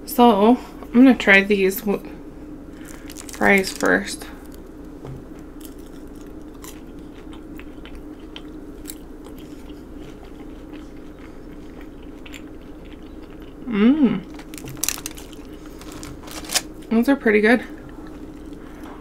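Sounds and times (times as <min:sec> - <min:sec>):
steady low hum: 0:00.0 - 0:19.0
person chewing wetly: 0:02.8 - 0:04.9, 0:05.6 - 0:16.6, 0:17.8 - 0:19.0
short hummed vocal sound: 0:13.6 - 0:14.6.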